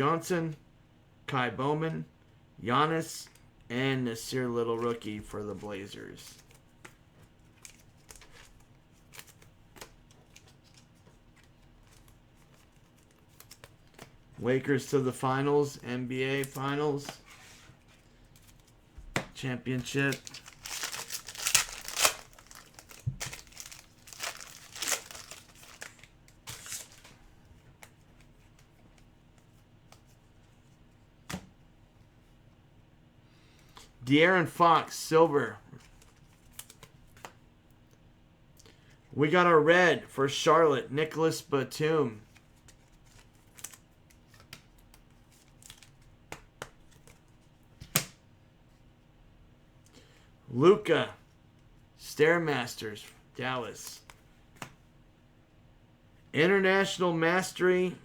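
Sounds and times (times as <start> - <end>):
cards being handled: 5.6 - 15.0, 16.4 - 31.4, 35.8 - 37.4, 42.2 - 48.1
card pack wrapper crinkling: 19.7 - 27.1.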